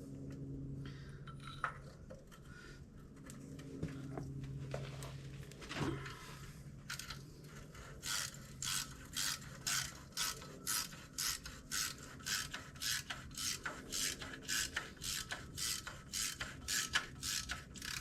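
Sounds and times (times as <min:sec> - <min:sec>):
ratchet wrench pawl rasping: 0:06.9 - 0:18.0.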